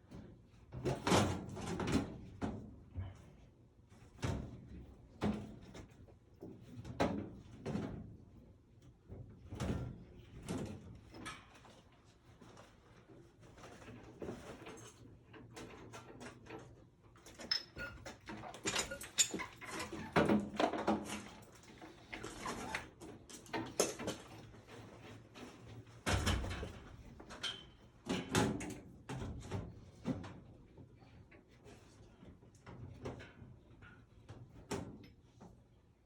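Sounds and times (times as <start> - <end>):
tools and parts knocking and scraping: 13.6 - 28.7.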